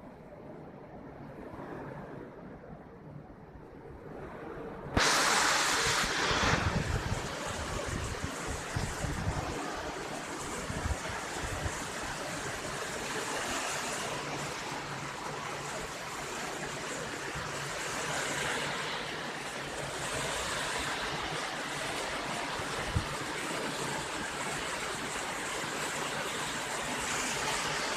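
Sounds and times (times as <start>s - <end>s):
wind bumps on microphone: 1.0s - 12.6s
heavy rain hiss: 5.0s - 27.9s.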